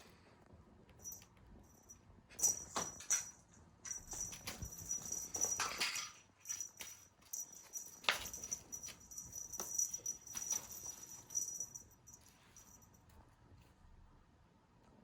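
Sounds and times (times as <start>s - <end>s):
cat playing with toy: 1.0s - 13.0s.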